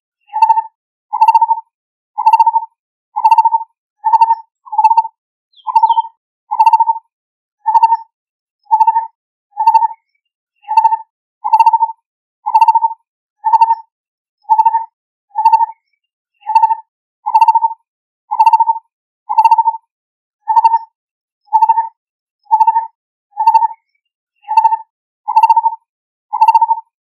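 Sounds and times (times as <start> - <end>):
barbet calling mellow notes: 4.1 - 6.9.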